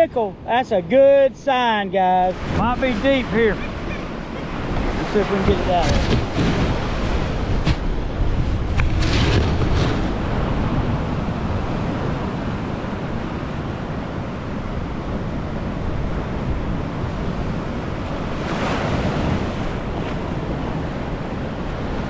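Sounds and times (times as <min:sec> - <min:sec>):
storm surf breaking on beach: 0:01.5 - 0:22.0
wind buffeting microphone: 0:02.3 - 0:22.0.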